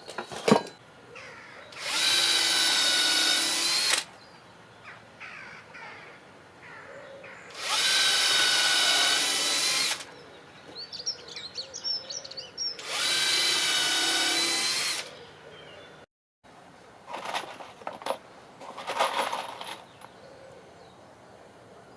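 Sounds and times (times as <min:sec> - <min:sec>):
faint birds chirping: 0:00.0 - 0:03.4, 0:04.1 - 0:08.1, 0:08.7 - 0:16.1, 0:19.3 - 0:21.9
power drill motor whine: 0:01.8 - 0:04.1, 0:07.6 - 0:10.1, 0:12.8 - 0:15.1.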